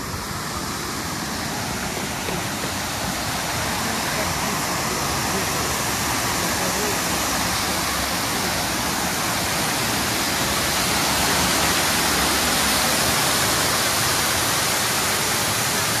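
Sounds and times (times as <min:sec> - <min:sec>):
water pouring over waterfall: 0:00.0 - 0:16.0.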